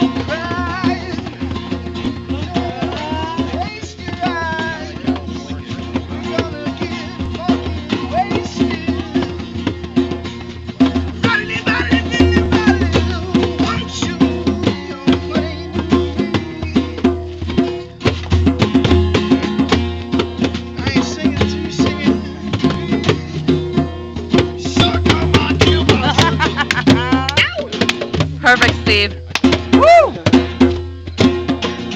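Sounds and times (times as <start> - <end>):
busy drum beat: 0.0 - 31.9
live band playing: 0.0 - 31.9
held bass notes: 8.8 - 31.9.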